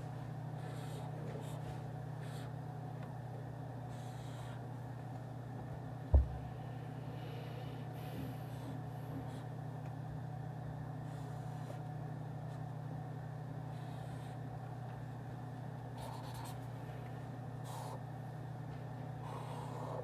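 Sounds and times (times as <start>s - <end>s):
low room hum: 0.0s - 20.0s
pen scratching on paper: 16.0s - 16.6s.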